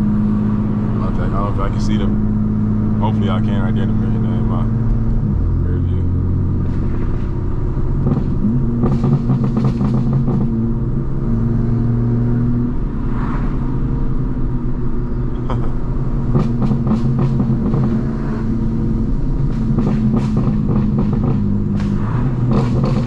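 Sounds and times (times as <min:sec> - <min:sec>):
car exhaust droning: 0:00.0 - 0:23.0
exhaust crackling pops: 0:06.6 - 0:11.0, 0:16.2 - 0:23.0.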